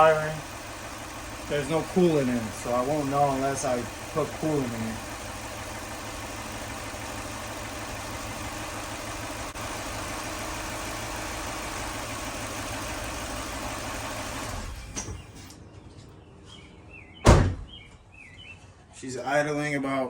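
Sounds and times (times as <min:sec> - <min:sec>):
car engine idling: 0:00.0 - 0:15.5.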